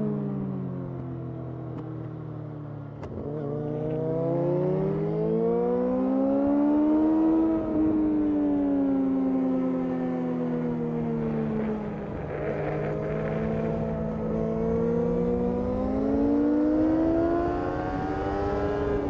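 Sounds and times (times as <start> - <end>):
sport bike engine accelerating: 11.2 - 19.0.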